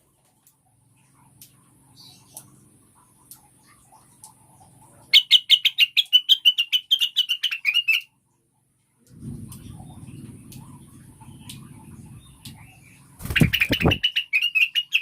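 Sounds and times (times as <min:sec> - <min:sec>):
faint low hum: 0:08.1 - 0:14.2
bird chirping rapidly: 0:12.7 - 0:15.0.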